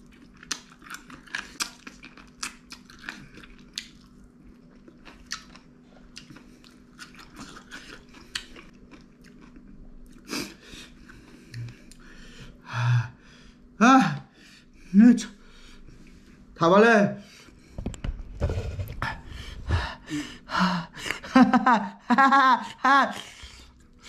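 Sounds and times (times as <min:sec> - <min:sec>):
person chewing and biting: 0:00.0 - 0:12.0.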